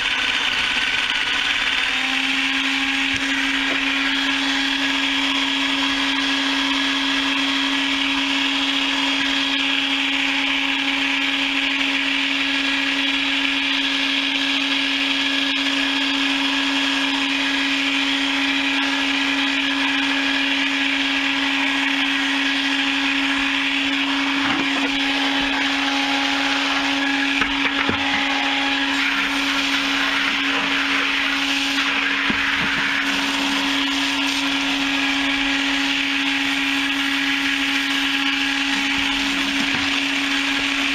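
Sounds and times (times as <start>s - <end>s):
chicken plucker motor humming: 0.0s - 40.9s
knocks and rubbing: 27.4s - 28.3s.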